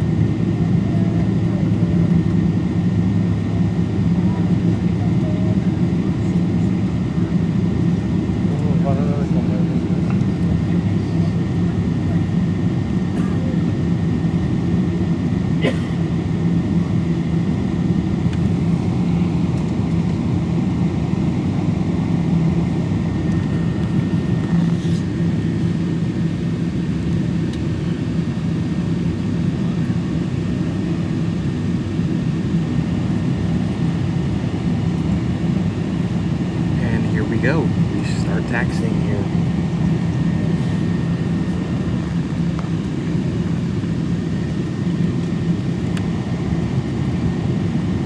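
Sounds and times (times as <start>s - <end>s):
aircraft cabin drone: 0.0s - 48.0s
faint steady whine: 33.0s - 44.6s.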